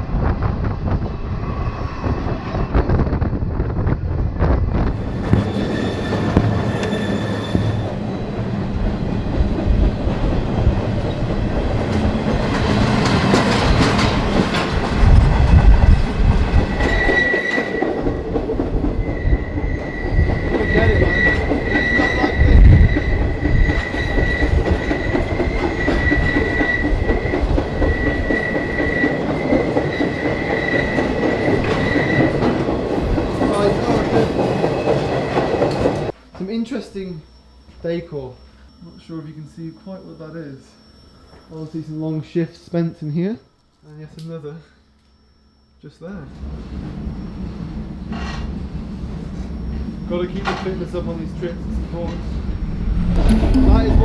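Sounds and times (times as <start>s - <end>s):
train wheels rumbling on rail: 0.0s - 36.2s, 46.3s - 53.4s
high wheel squeal: 5.0s - 8.4s, 16.6s - 18.2s, 18.8s - 32.5s, 36.9s - 42.5s, 49.4s - 53.1s.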